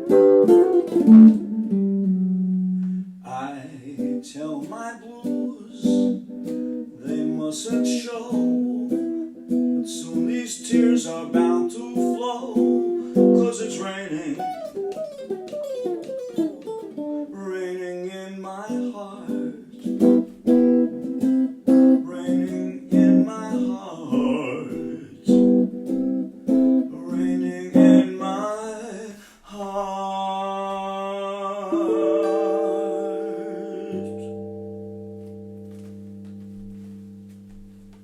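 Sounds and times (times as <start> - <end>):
acoustic guitar chords: 0.0 - 29.2, 29.8 - 38.0
person singing: 3.2 - 15.0, 16.6 - 20.2, 21.2 - 34.8.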